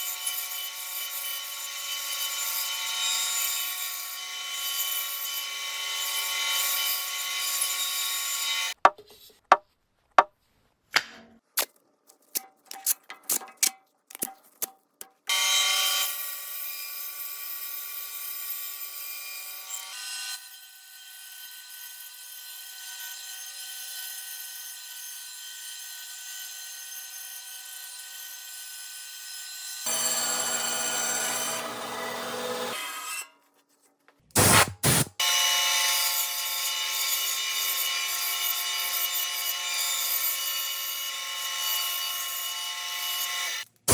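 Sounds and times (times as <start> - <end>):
sharp knocks and taps on wood: 8.8 - 9.6
power tool motor running: 29.9 - 32.8.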